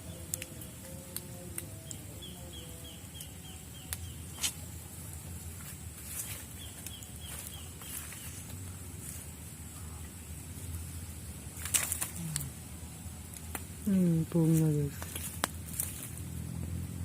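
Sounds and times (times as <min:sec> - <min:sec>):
bird chirping: 0:00.0 - 0:04.7, 0:06.1 - 0:08.6
sharp snaps: 0:00.1 - 0:02.2, 0:03.1 - 0:04.7, 0:11.6 - 0:12.6, 0:13.2 - 0:16.2.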